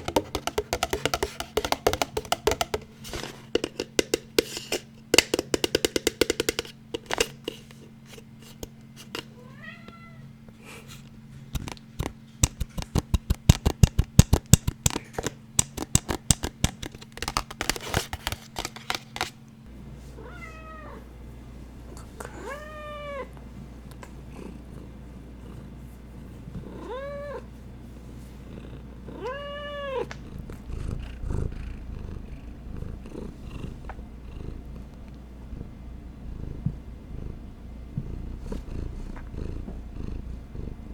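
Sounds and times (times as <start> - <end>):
tapping and scratching on hard objects: 0.0 - 9.4, 11.5 - 19.5
cat meowing: 9.4 - 10.3, 20.2 - 21.0, 22.3 - 23.3, 26.7 - 27.5, 29.1 - 30.2.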